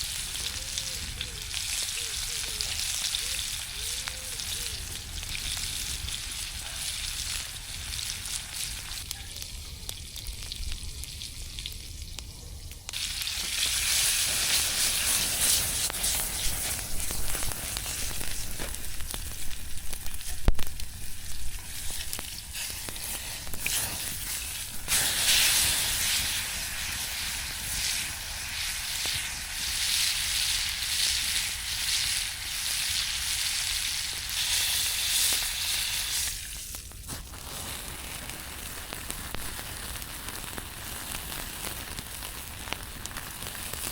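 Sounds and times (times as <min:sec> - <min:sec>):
steak sizzling over fire: 0:00.0 - 0:43.9.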